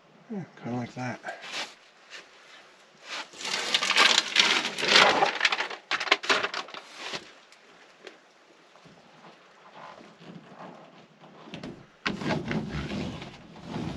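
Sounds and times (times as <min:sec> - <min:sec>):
crinkling sheet and paper backing: 0:03.0 - 0:07.3.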